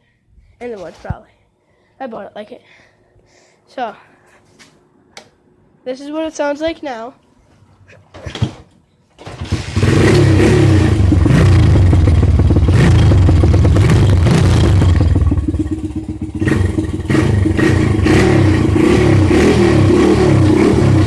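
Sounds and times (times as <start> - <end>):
dirt bike engine revving: 9.2 - 21.0.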